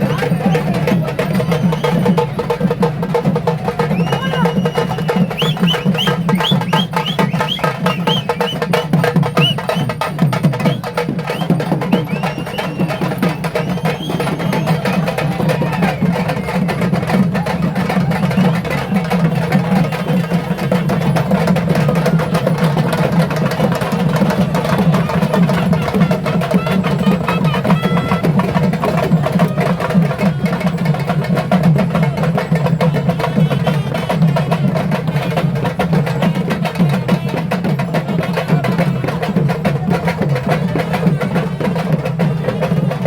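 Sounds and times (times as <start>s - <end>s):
crowd voices: 0.0s - 43.0s
fast dense drumming: 0.0s - 43.0s
short high calls: 3.8s - 16.3s.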